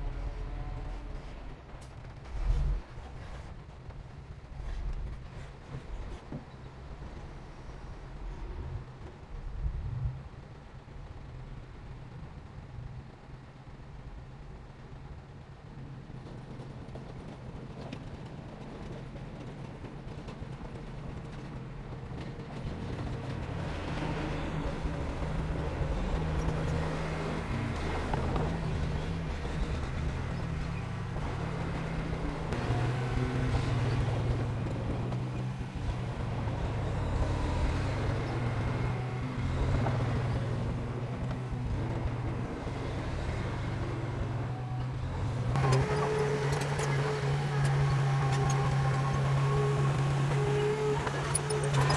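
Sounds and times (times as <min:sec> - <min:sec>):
diesel engine droning: 0:21.4 - 0:51.9.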